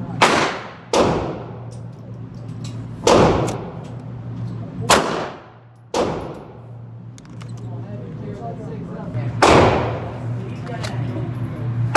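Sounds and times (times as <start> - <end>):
steady low hum: 0.0 - 11.9
pistol shots with echo: 0.2 - 1.7, 3.0 - 3.8, 4.9 - 6.6, 9.4 - 10.2.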